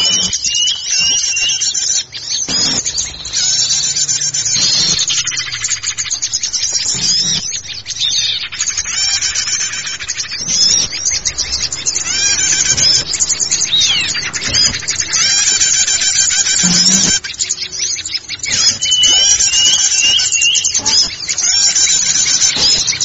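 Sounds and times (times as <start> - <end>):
songbirds chirping and calling: 0.0 - 23.0.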